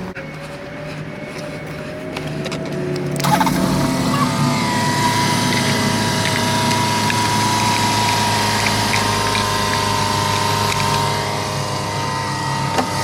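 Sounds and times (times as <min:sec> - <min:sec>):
car engine idling: 0:03.1 - 0:12.2.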